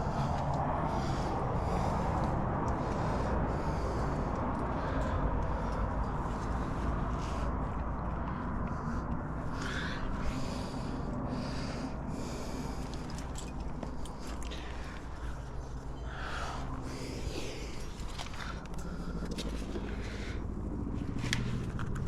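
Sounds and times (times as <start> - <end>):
heavy snorting breaths: 0.0 - 21.8
wind rumbling on microphone: 0.0 - 22.0
climbing gear clicking on rock: 12.4 - 22.0.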